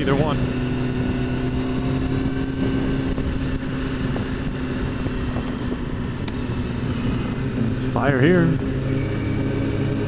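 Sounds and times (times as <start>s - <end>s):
motorcycle engine cruising: 0.0s - 10.0s
wind rushing over microphone: 0.0s - 10.0s.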